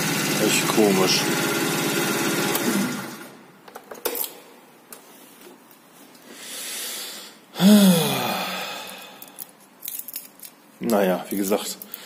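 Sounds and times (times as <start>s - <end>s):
soft breath in: 6.3s - 9.4s
voiced sigh: 6.4s - 9.4s.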